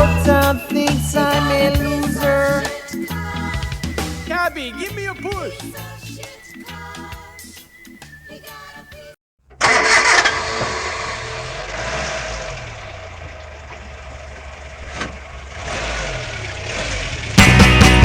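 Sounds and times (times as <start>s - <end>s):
car engine starting and running: 9.4s - 18.0s.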